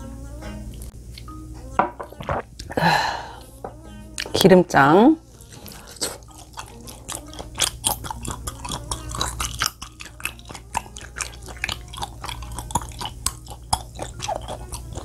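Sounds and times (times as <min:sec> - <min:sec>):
chewing with mouth clicks and smacks: 0:05.2 - 0:15.0.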